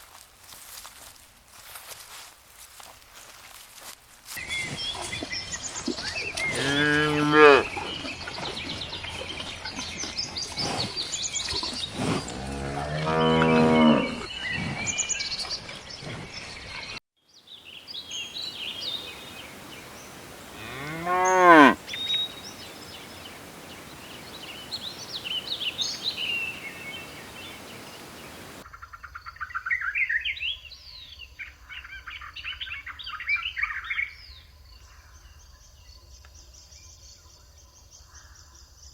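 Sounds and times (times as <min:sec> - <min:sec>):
cows mooing: 0:06.6 - 0:07.7, 0:12.2 - 0:14.3, 0:19.0 - 0:28.6
small birds chirping: 0:17.4 - 0:28.6.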